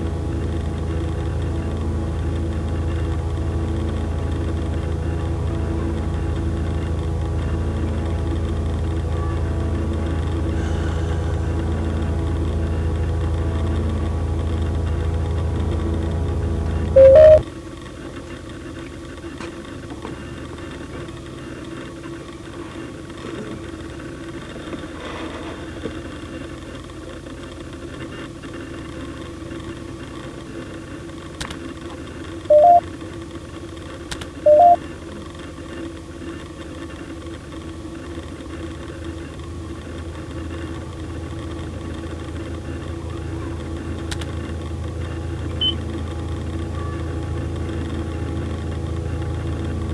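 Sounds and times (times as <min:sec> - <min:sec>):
low electronic hum: 0:00.0 - 0:18.0, 0:32.4 - 0:32.9, 0:34.5 - 0:34.8, 0:39.1 - 0:49.9
two-note beeps: 0:17.0 - 0:17.4, 0:32.5 - 0:32.8, 0:34.5 - 0:34.8, 0:45.6 - 0:45.8.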